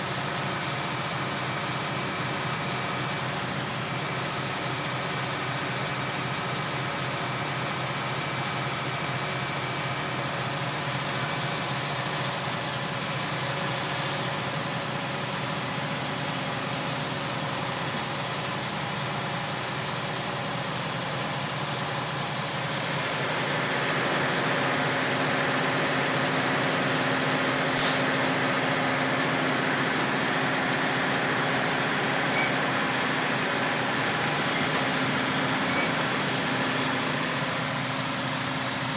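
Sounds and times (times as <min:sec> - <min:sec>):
concrete truck engine running: 0:00.0 - 0:38.9
air hiss: 0:13.8 - 0:14.6, 0:27.8 - 0:28.4.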